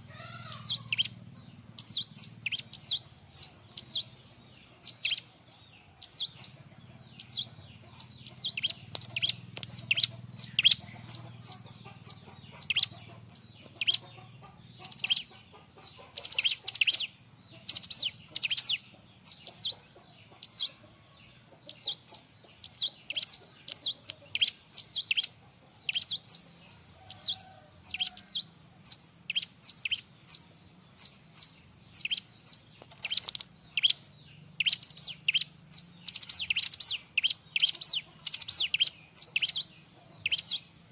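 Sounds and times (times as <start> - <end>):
bird chirping: 0.0 - 40.9.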